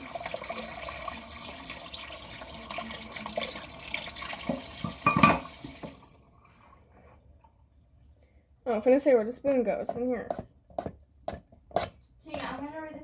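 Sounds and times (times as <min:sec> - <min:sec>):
tap water running: 0:00.0 - 0:07.6.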